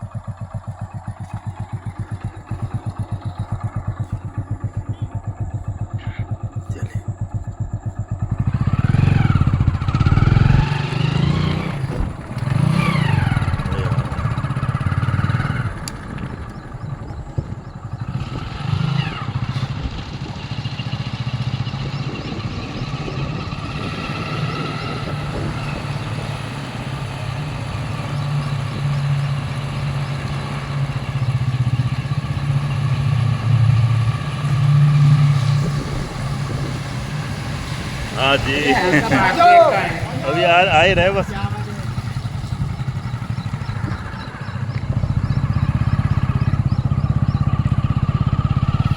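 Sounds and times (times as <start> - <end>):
motorcycle engine: 0.0 - 48.9.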